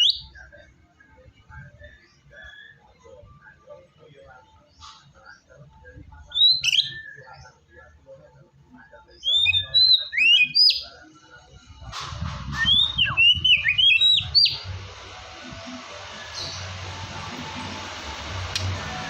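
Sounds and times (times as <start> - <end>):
bird singing whistled phrases: 0.0 - 0.4, 2.4 - 2.9, 6.3 - 7.4, 9.2 - 10.9, 12.5 - 14.7.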